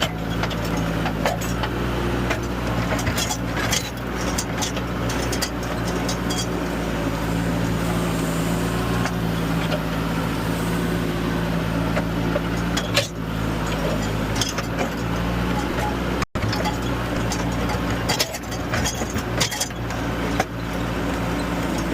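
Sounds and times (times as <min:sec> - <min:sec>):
metal clanks and knocks: 0:00.0 - 0:08.0, 0:11.8 - 0:21.9
diesel engine running: 0:00.0 - 0:21.9.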